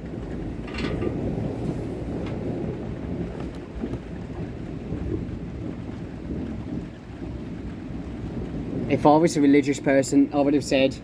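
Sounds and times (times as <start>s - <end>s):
thunder rumbling: 0.0s - 11.0s.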